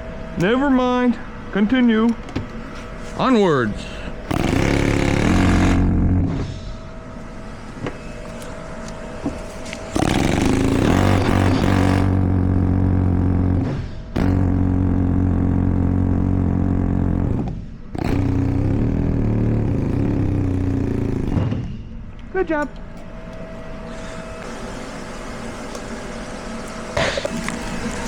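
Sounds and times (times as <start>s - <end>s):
pneumatic air hammer: 3.8s - 6.9s, 7.8s - 22.0s, 23.9s - 28.0s.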